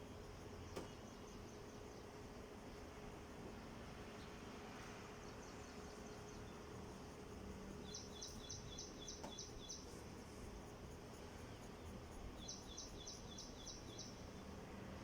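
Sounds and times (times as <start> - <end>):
faint steady hum: 0.0 - 15.0
bird chirping faintly: 7.6 - 10.4, 11.3 - 14.6.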